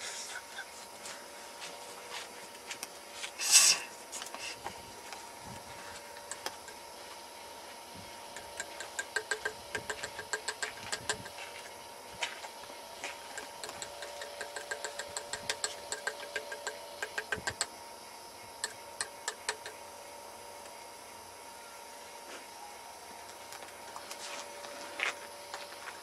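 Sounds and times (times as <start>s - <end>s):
steady hum: 0.0s - 26.0s
bursts of sharp clicks: 13.4s - 17.7s.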